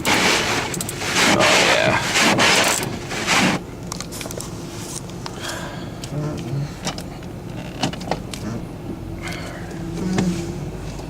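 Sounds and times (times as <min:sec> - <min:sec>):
car engine hum: 0:00.0 - 0:11.0.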